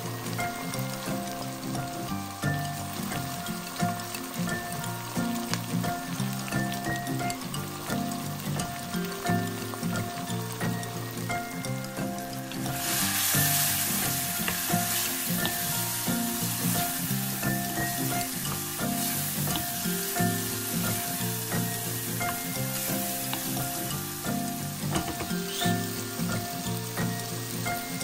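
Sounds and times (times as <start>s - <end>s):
background music: 0.0s - 28.0s
vegetables sizzling in oil: 0.0s - 28.0s
wooden spatula stirring: 12.1s - 23.9s.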